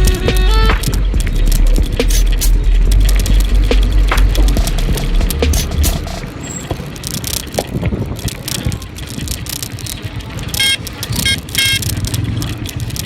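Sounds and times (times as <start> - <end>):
vehicle horn beeps: 0.0 - 0.8, 10.6 - 11.8
wind and road rumble: 0.0 - 13.0.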